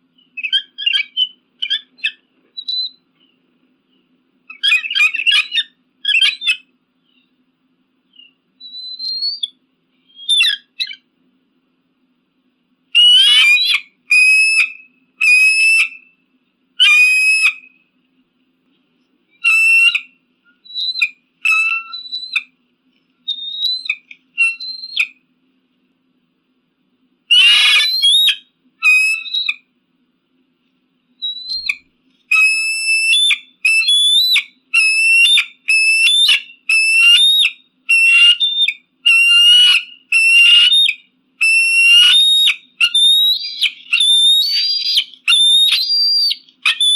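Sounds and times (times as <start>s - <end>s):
eagle calling: 0.2s - 3.3s, 4.5s - 7.3s, 8.1s - 11.1s, 13.0s - 16.1s, 16.8s - 17.8s, 19.4s - 22.6s, 23.3s - 25.2s, 27.3s - 29.7s, 31.2s - 46.9s.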